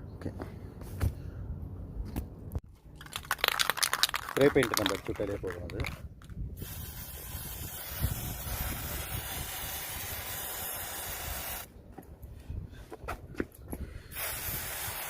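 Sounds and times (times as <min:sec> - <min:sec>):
spray paint can hissing: 0:06.6 - 0:11.7, 0:14.1 - 0:15.0.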